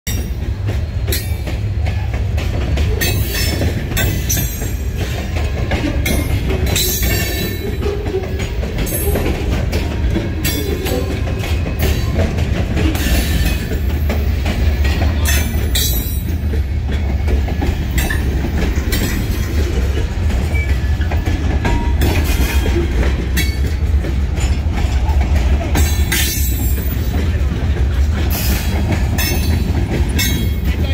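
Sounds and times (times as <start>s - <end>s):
freight train rumbling past: 0.1s - 30.9s
wheels clacking: 0.1s - 30.9s.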